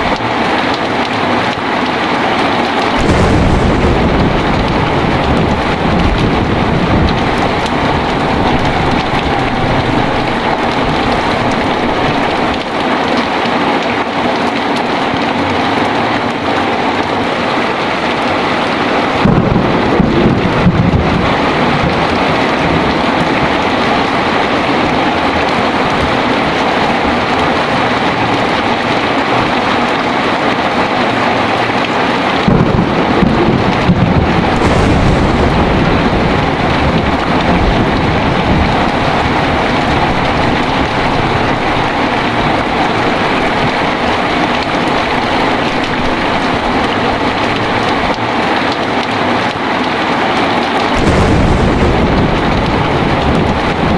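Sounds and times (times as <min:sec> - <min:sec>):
heavy rain: 0:00.0 - 0:53.9
thunder rumbling: 0:00.0 - 0:53.9.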